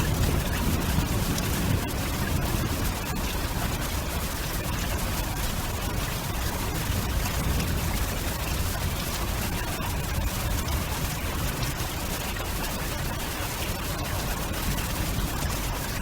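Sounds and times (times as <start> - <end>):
fine crackling ticks: 0.0 - 5.2
rain rushing: 0.0 - 16.0
wind: 0.0 - 16.0.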